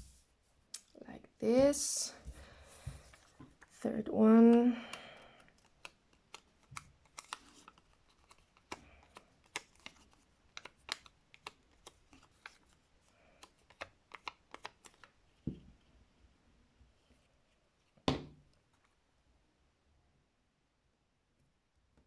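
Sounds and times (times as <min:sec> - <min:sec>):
paper and card clicks and taps: 0:04.8 - 0:12.8, 0:13.4 - 0:15.6.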